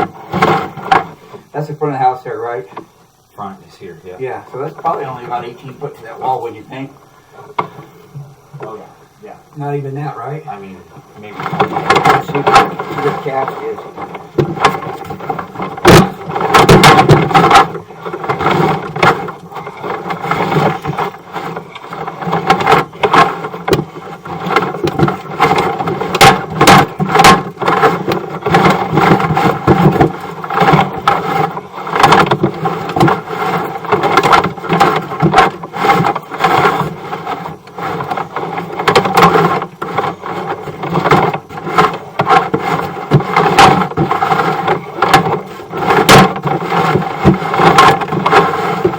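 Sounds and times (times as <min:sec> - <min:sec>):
steady mechanical hum: 0:00.0 - 0:48.9
camera cable scraping in pipe: 0:11.2 - 0:48.9.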